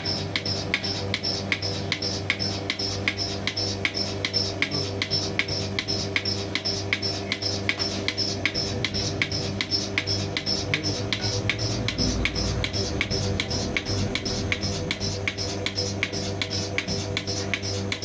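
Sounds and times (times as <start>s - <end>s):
milking pulsator clicking: 0.0s - 18.0s
vacuum pump motor humming: 0.0s - 18.0s.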